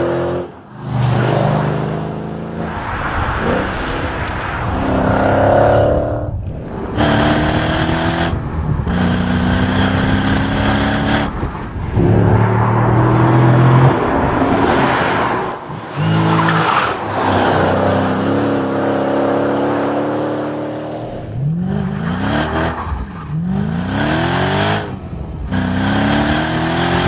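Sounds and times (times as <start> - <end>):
car engine accelerating hard: 0.0 - 27.0.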